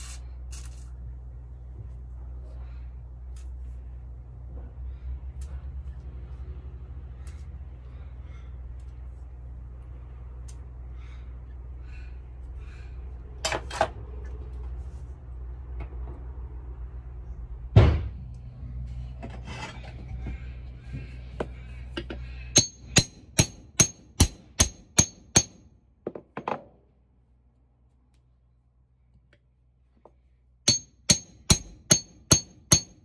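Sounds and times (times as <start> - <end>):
low steady hum: 0.0 - 26.0
heavy thump: 17.8 - 18.2
ringing metal strikes: 22.6 - 25.6, 30.7 - 33.0
hammer striking chisel: 22.6 - 25.7, 30.7 - 33.0.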